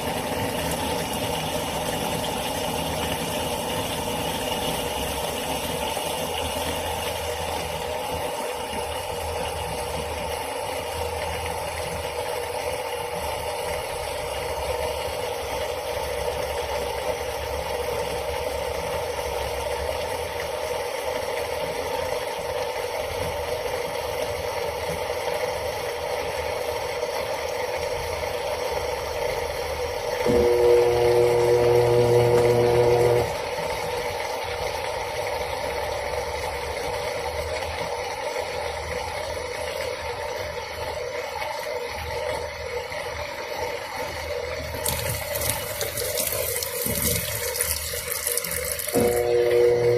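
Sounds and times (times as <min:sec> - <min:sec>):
washing machine running: 0:00.0 - 0:49.9
louder steady hum: 0:30.3 - 0:33.6, 0:48.8 - 0:49.9.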